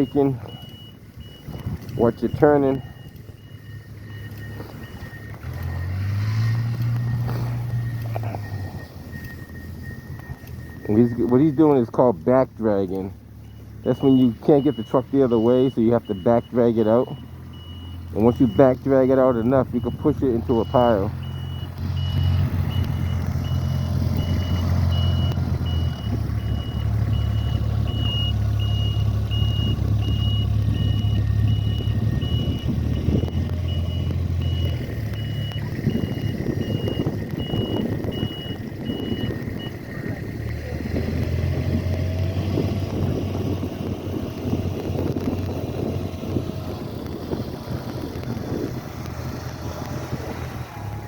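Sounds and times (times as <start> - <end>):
backup alarm beeping: 0.0 - 12.0, 12.6 - 39.8
plow dragging snow: 0.0 - 51.0
truck engine running: 0.0 - 51.0.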